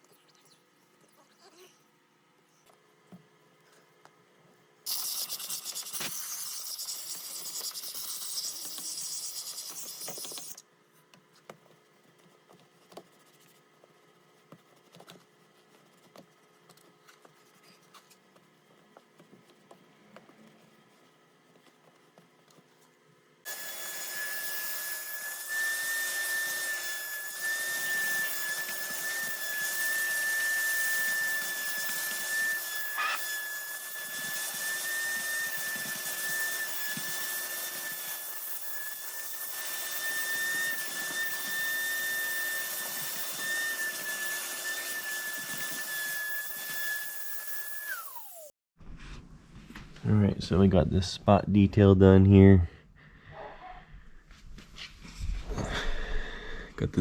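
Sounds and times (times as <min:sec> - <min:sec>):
vacuum cleaner running: 0:23.5 - 0:48.5.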